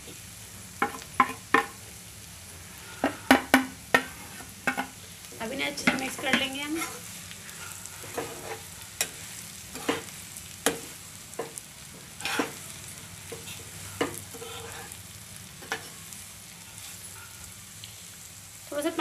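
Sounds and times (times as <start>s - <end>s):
food sizzling in oil: 0.0s - 19.0s
spatula knocking and scraping pan: 0.8s - 1.8s, 3.0s - 5.0s, 5.7s - 7.0s, 7.6s - 12.6s, 13.3s - 15.0s.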